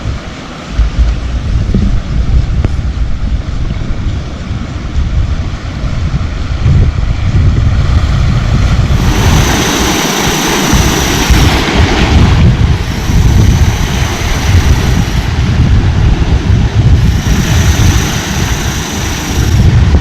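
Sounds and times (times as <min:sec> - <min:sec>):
sea waves: 0:00.0 - 0:20.0
steady high whine: 0:00.0 - 0:20.0
wind buffeting microphone: 0:00.0 - 0:20.0.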